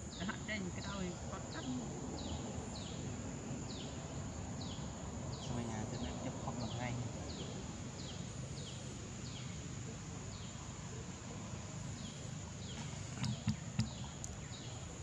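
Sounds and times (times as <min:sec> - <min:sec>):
birds calling: 0:00.0 - 0:15.0
sharp knocks: 0:13.2 - 0:14.0.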